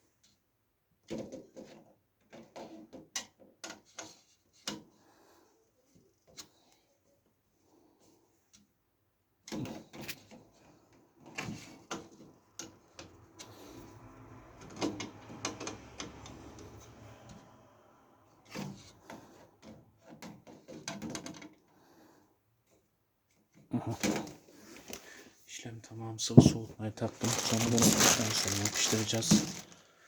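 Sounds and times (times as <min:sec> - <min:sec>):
rubbing and scraping: 0:26.4 - 0:29.8.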